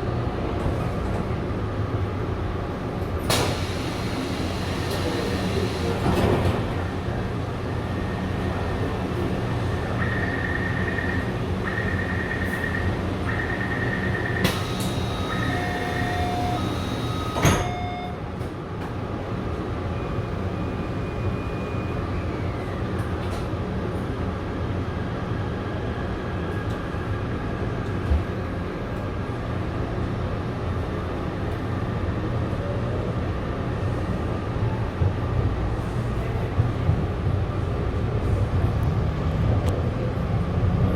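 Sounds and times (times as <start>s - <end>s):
train rumbling: 0.0s - 40.9s
sliding doors shutting: 3.2s - 7.1s, 14.4s - 17.9s
door-closing chime beeping: 14.4s - 18.2s.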